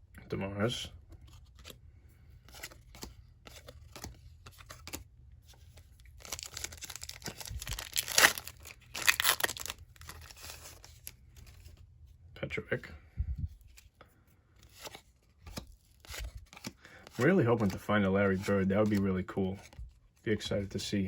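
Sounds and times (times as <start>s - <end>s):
cards ticking and rustling: 1.0s - 11.8s, 14.6s - 20.7s
wrapper tearing and crinkling: 6.0s - 11.1s.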